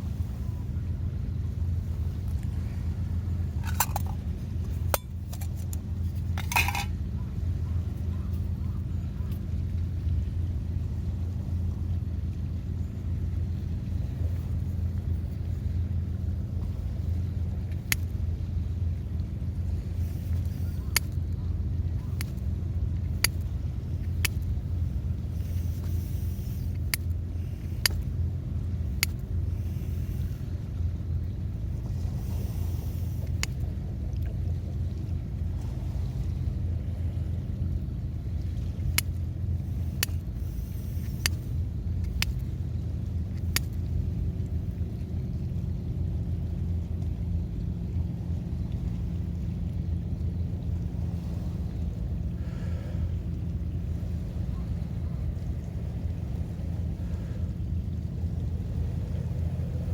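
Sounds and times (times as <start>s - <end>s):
surf at the shore: 0.0s - 59.9s
wind rumbling: 0.0s - 59.9s
hard objects clinking: 3.6s - 4.2s, 6.4s - 6.9s.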